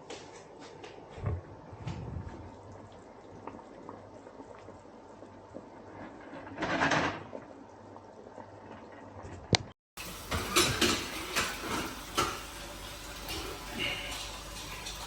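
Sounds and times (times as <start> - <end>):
cookware and utensils clattering: 10.0 - 15.0.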